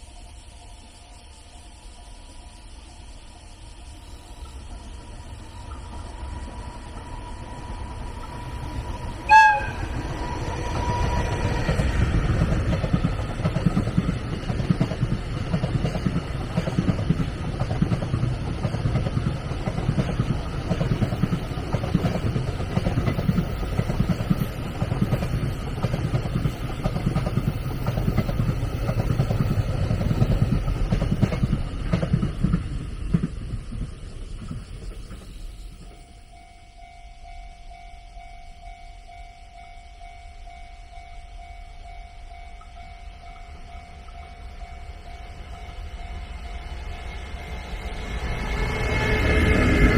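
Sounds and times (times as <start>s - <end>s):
train wheels rumbling on rails: 0.0s - 49.9s
train horn toot: 9.2s - 10.2s.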